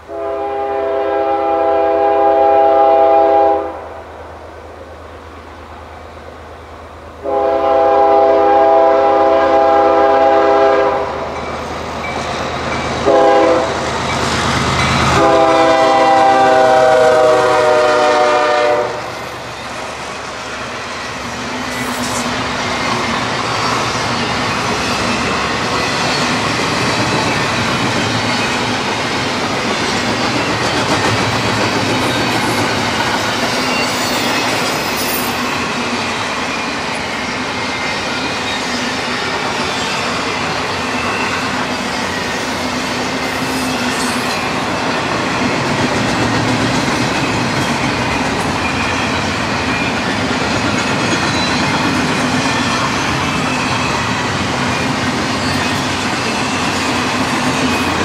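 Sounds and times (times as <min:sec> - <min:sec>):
train rumble and wheel clatter: 0:00.0 - 0:58.0
locomotive air horn blasts: 0:00.1 - 0:03.9, 0:07.2 - 0:11.2, 0:13.0 - 0:13.8, 0:15.0 - 0:19.1.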